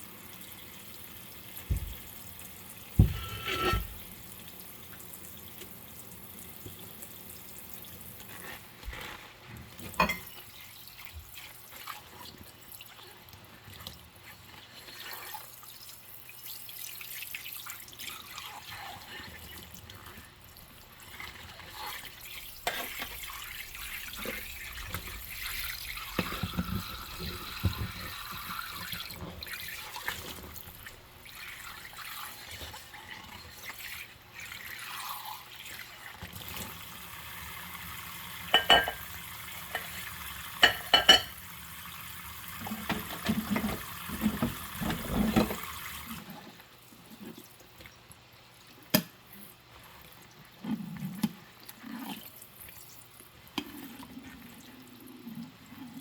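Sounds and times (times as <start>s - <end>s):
tap water running into sink: 0.1s - 8.3s, 20.6s - 46.2s
dishes washed in rubber gloves: 1.4s - 5.9s, 6.6s - 37.8s, 38.4s - 48.1s
sharp ringing of dishes: 38.5s - 39.0s, 40.6s - 41.3s.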